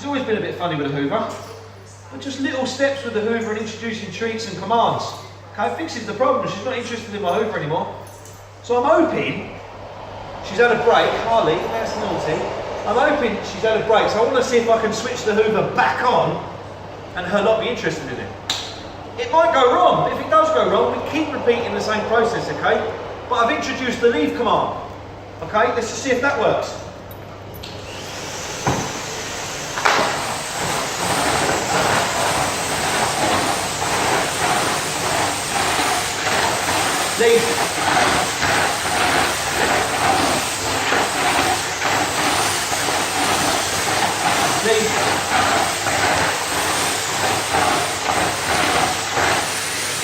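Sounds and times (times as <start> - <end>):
vacuum cleaner running: 8.6 - 16.6, 17.3 - 24.8, 27.6 - 50.0
knock: 28.6 - 28.9.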